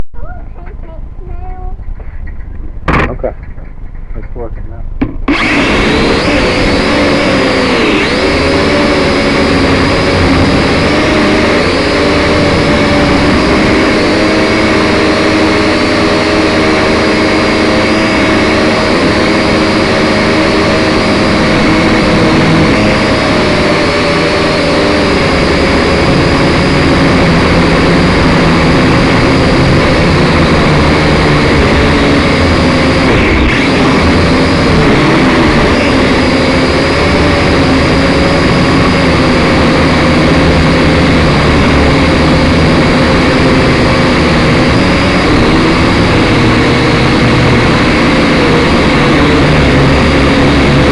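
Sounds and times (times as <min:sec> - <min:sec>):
drone propellers whining: 0:00.0 - 0:50.9.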